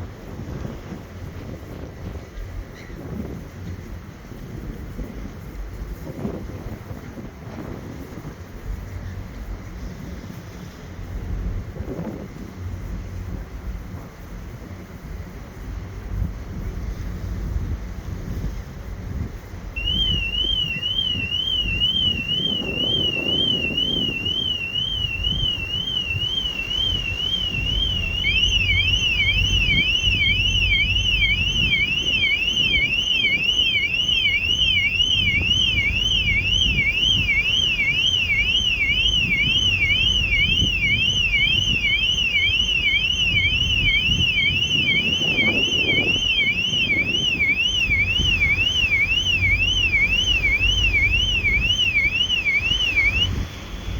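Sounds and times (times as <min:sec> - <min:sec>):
car alarm sirens warbling: 0:19.8 - 0:53.9.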